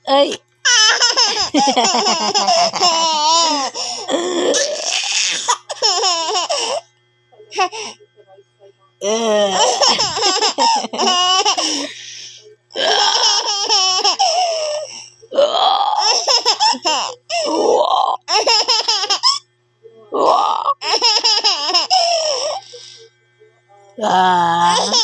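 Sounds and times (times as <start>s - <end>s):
baby laughing: 0.7s - 6.8s, 9.1s - 12.1s, 12.9s - 15.0s, 16.0s - 17.6s, 18.2s - 19.4s, 20.8s - 23.0s, 24.6s - 25.0s.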